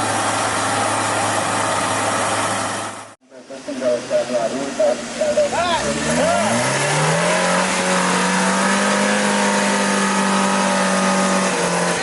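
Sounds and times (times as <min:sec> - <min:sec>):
jeep engine revving: 0:05.0 - 0:12.0.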